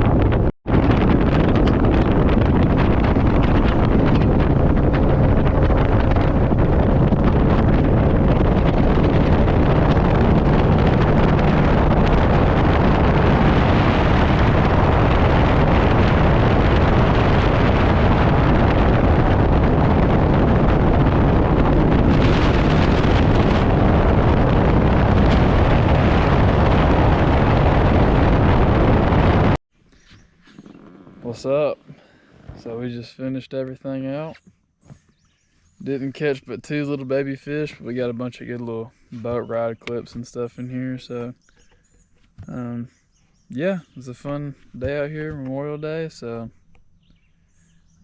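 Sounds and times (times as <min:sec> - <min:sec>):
boat motor running: 0:00.0 - 0:29.6
wind buffeting microphone: 0:00.0 - 0:31.8.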